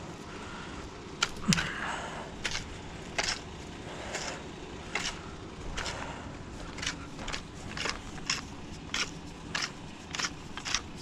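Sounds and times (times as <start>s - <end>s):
footsteps at walking pace: 2.4s - 11.0s.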